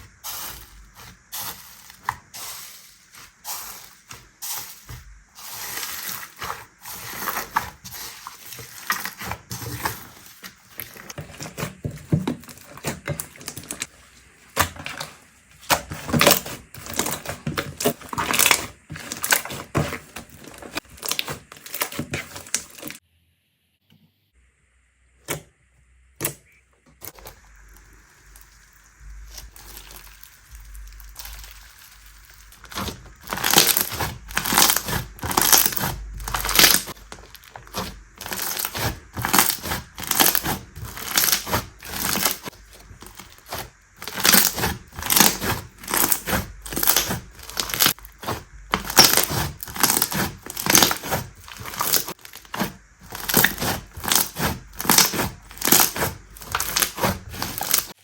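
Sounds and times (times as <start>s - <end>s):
faint handling sounds: 0.0s - 23.0s
slime crackling and popping: 0.1s - 13.9s, 15.6s - 23.0s, 27.5s - 58.0s.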